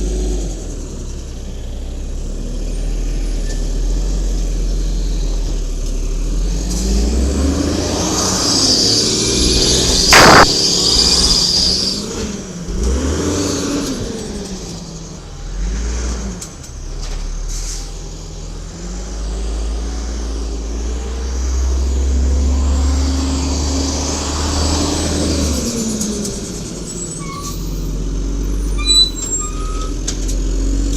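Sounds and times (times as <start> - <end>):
truck engine revving: 2.3 - 26.9
air brake hiss: 17.5 - 18.0.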